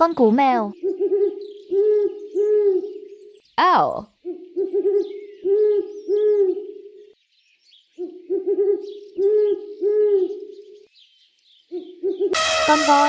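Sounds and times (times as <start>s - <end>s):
owl hooting: 0.7s - 3.4s, 4.1s - 7.1s, 8.0s - 10.8s, 11.7s - 12.4s.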